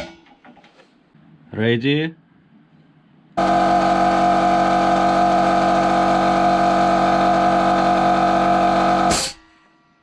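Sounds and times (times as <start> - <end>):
air compressor running: 3.4 - 9.4.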